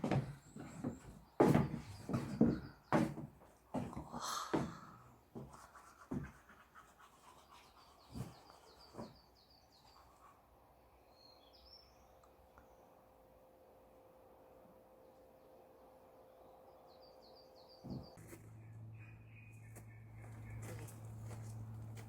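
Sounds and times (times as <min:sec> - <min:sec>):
bird chirping: 0:16.2 - 0:21.2.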